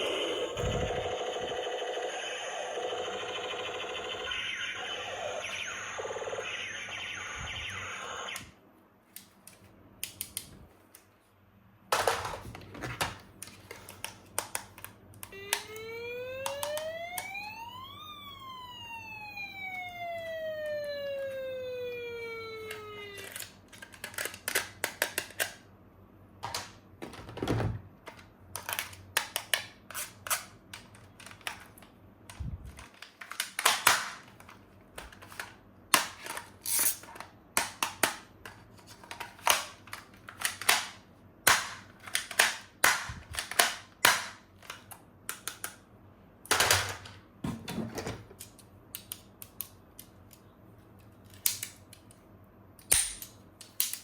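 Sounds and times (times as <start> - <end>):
plastic toy parts clicking: 22.6 - 25.6, 28.1 - 45.8, 48.4 - 50.4, 51.0 - 52.2, 52.8 - 54.0.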